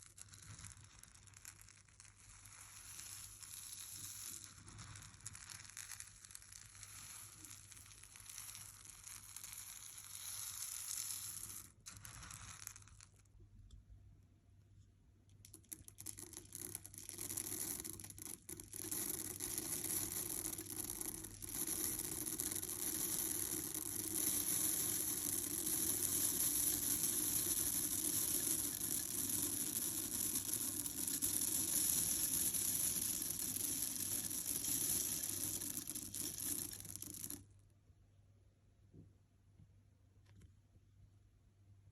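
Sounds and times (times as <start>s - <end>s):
wax flakes rustling and crunching: 0.0s - 13.4s, 15.4s - 37.5s.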